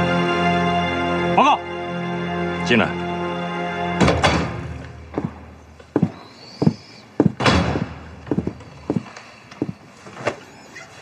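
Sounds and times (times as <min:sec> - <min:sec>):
door shutting thud: 0:04.0 - 0:04.6, 0:07.4 - 0:08.0
footsteps: 0:04.8 - 0:10.4.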